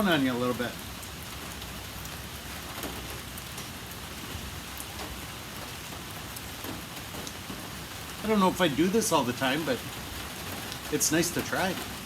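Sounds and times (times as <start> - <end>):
rain falling: 0.0 - 12.0
raindrop ticks: 0.0 - 12.0.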